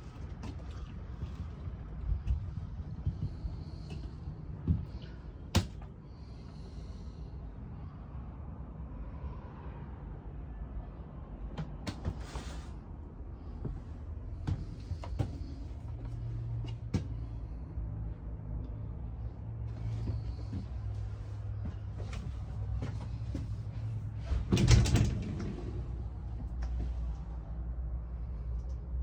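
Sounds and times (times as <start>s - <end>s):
steady low hum: 0.0s - 9.2s
low background rumble: 0.0s - 29.0s.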